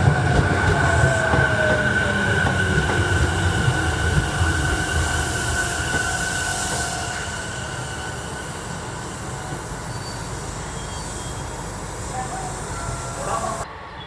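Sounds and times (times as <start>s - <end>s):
electric train rumbling on rails: 0.0s - 14.0s
thin high squeal: 3.6s - 13.6s.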